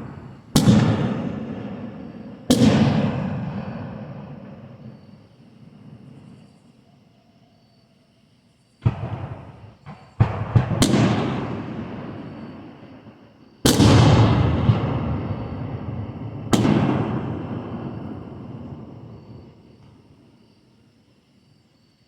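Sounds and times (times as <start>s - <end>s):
small fireworks cracks: 0.0s - 4.8s, 8.8s - 20.1s
fireworks booming: 0.0s - 6.5s, 8.8s - 20.3s.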